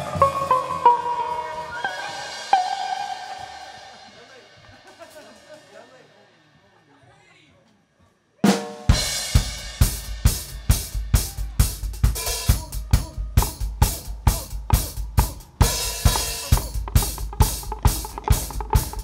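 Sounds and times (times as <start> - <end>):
drum kit playing a beat: 0.0 - 5.9, 8.4 - 19.0.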